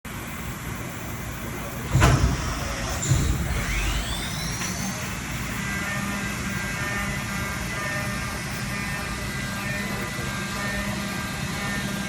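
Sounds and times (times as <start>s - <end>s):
spindle whine and machine hum: 0.1s - 12.0s
machine clunk: 1.8s - 5.1s
machine thud: 1.9s - 5.2s.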